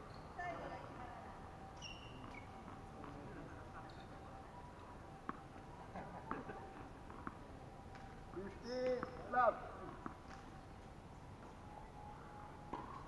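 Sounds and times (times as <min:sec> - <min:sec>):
faint distant voices: 0:00.3 - 0:13.0
tennis balls struck and bouncing: 0:02.1 - 0:03.5, 0:05.2 - 0:10.6, 0:12.7 - 0:13.0.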